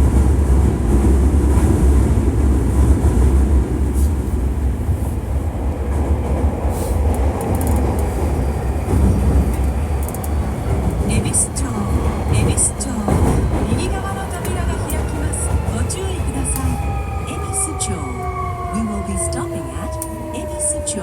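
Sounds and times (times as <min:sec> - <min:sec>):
train wheels rumbling on rail: 0:00.0 - 0:21.0
faint clicks: 0:07.0 - 0:08.1, 0:09.5 - 0:10.4.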